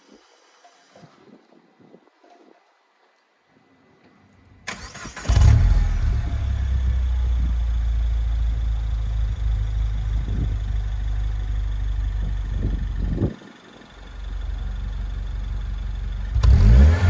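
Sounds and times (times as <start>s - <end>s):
car engine starting and idling: 4.6s - 17.0s
engine revving: 4.7s - 7.6s, 16.3s - 17.0s.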